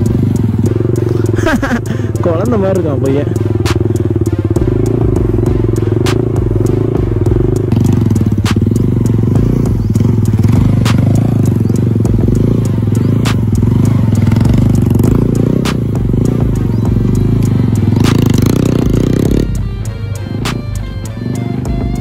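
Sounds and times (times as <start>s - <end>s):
motorcycle engine running: 0.0s - 22.0s
sharp click: 13.2s - 13.6s, 18.0s - 18.4s, 20.4s - 20.7s.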